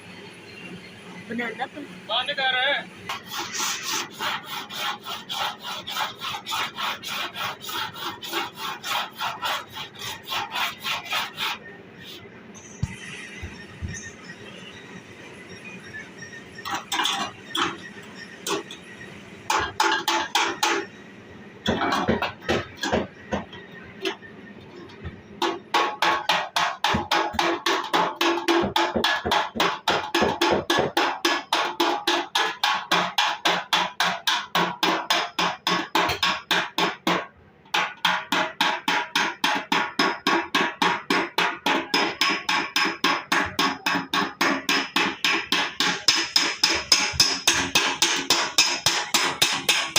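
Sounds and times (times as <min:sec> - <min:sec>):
hammer beating sheet metal: 0:03.1 - 0:12.2, 0:19.5 - 0:20.9, 0:21.6 - 0:24.2, 0:25.4 - 0:49.9.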